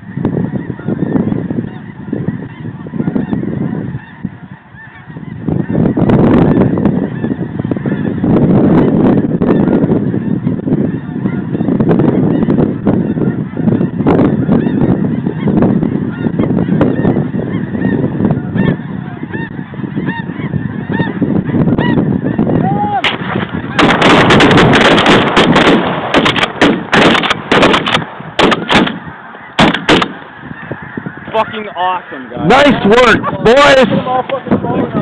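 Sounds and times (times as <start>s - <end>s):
geese honking and calling: 0.0s - 35.0s
shotgun blasts: 23.0s - 29.0s, 29.6s - 30.2s.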